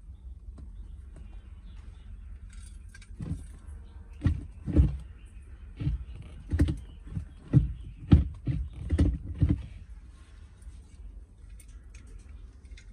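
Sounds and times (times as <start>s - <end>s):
low steady hum: 0.0s - 12.9s
metal car parts clanking: 2.4s - 3.7s, 10.8s - 12.9s.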